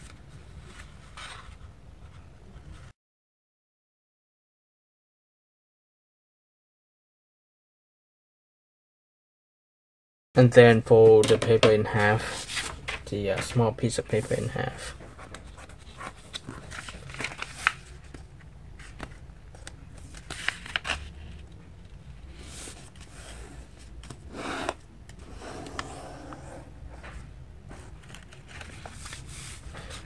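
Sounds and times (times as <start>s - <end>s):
paper rustling and crinkling: 11.4s - 24.8s, 27.0s - 30.0s.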